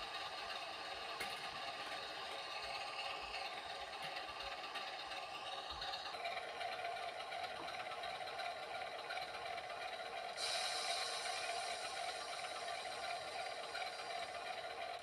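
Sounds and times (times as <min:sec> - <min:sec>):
light mechanical clatter: 0:00.0 - 0:15.0
model locomotive humming: 0:00.0 - 0:15.0.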